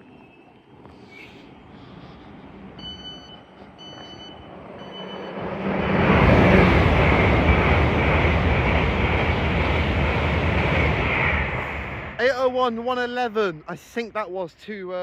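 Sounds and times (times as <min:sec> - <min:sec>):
train passing with deep rumble: 0:00.0 - 0:13.9
train warning beeps: 0:02.7 - 0:05.5.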